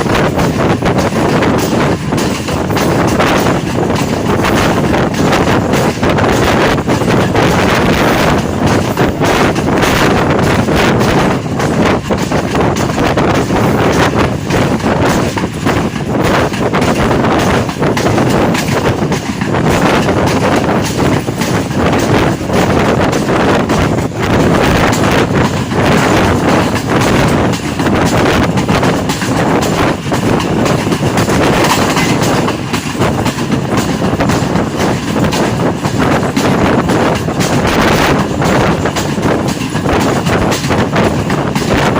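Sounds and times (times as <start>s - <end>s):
train wheels clattering on track: 0.0s - 41.9s
wind buffeting microphone: 0.0s - 41.9s.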